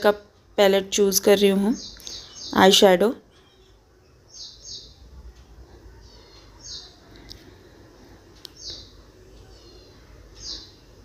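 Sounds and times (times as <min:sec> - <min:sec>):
bird chirping: 0:01.0 - 0:07.6, 0:08.4 - 0:11.0
soft clicks: 0:06.3 - 0:07.6, 0:08.3 - 0:09.5.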